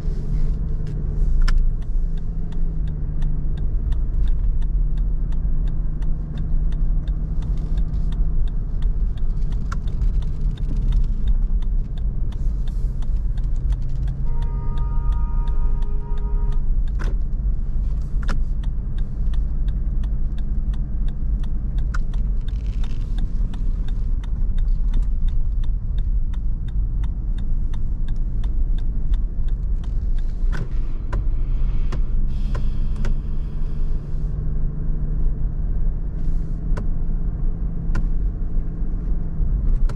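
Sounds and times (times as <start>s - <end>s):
car engine and tyre rumble: 0.0s - 39.9s
brief steady tone: 14.2s - 16.6s.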